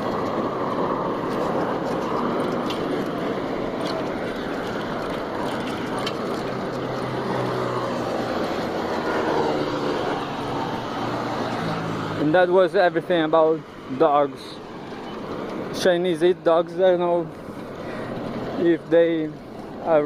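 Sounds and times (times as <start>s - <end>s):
low engine hum: 0.0s - 20.0s
road traffic with vehicles passing: 0.0s - 20.0s.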